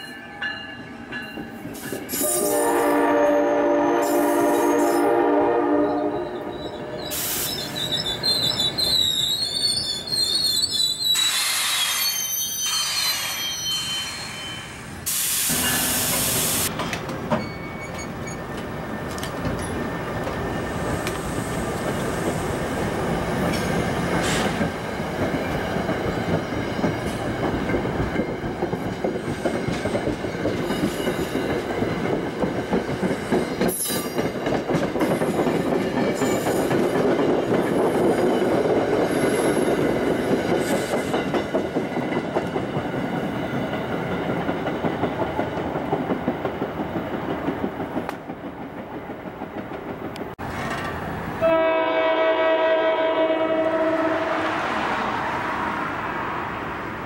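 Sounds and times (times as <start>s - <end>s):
train horn chord: 2.2s - 6.6s, 51.4s - 54.6s
train wheels rumbling and clattering: 14.1s - 51.4s.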